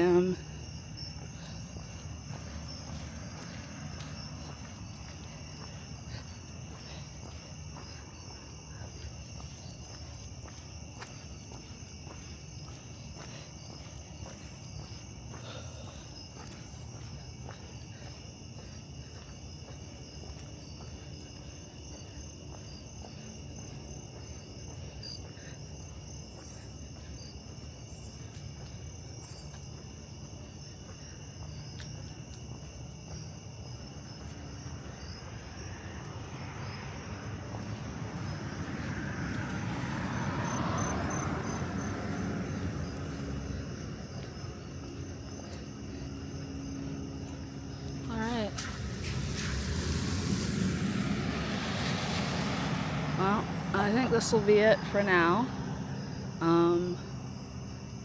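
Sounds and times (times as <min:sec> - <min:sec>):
crickets chirping: 0:00.0 - 0:58.0
low rumble: 0:47.7 - 0:56.4
broad rushing sound: 0:48.5 - 0:53.8.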